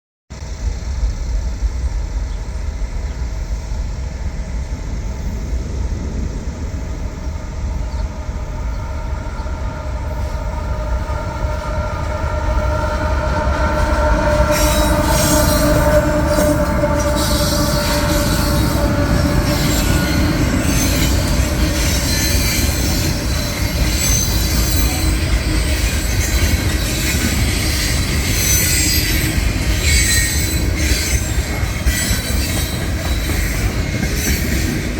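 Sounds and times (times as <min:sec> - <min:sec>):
freight train rumbling past: 0:00.4 - 0:34.9
train wheel squeal: 0:07.8 - 0:34.9
train wheels clattering: 0:09.4 - 0:34.9.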